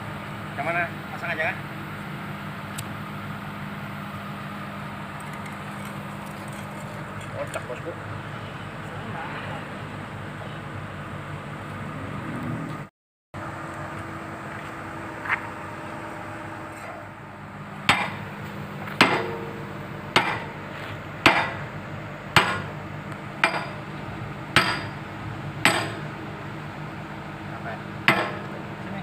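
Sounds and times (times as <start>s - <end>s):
hammer striking steel: 17.9s - 18.3s, 18.9s - 20.6s, 21.2s - 21.7s, 22.3s - 22.8s, 23.4s - 23.9s, 24.6s - 25.0s, 25.6s - 26.1s, 28.0s - 28.6s.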